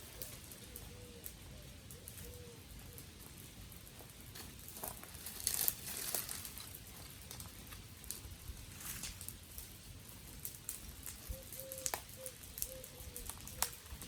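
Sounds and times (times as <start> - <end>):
dry twigs crackling and snapping: 0.0 - 14.0.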